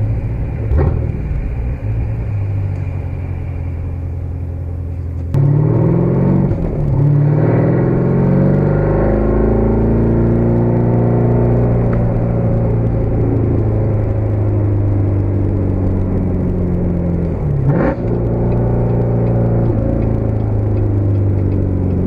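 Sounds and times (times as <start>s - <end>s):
car engine deep rumble: 0.0s - 22.0s
exhaust crackle: 0.0s - 22.0s.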